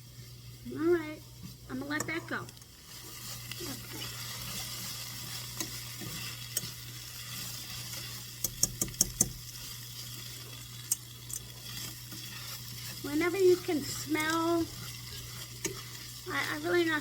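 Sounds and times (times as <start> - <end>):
roux sizzling in a pan: 0.0 - 17.0
utensil clicking against pan: 4.1 - 17.0.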